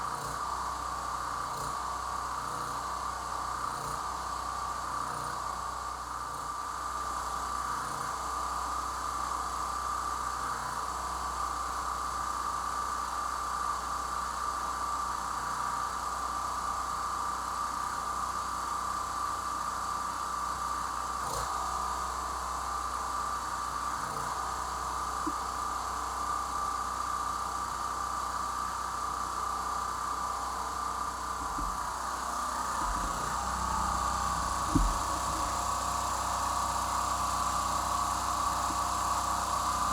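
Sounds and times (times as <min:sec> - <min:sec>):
generator engine running: 0:30.0 - 0:39.9.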